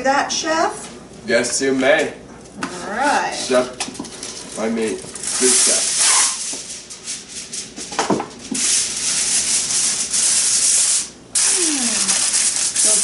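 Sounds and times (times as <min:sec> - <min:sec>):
aluminium foil crinkling: 0:04.0 - 0:07.8, 0:08.4 - 0:13.0.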